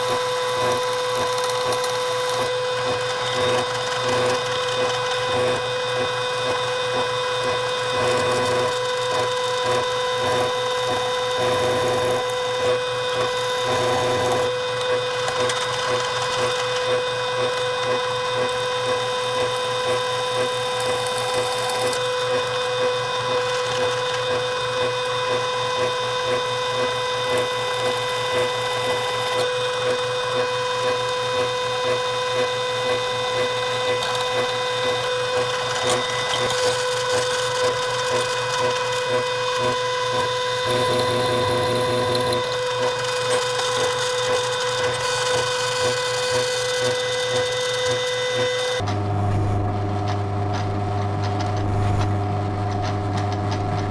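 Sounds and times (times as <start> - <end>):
electric drill drilling into steel: 0.0 - 48.8.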